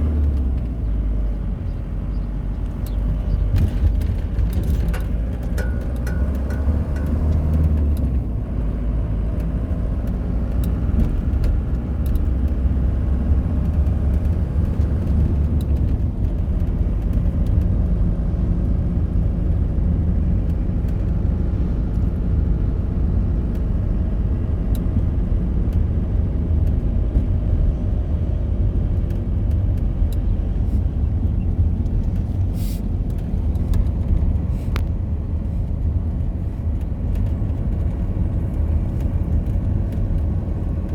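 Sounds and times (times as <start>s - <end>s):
car engine rumbling: 0.0s - 40.9s.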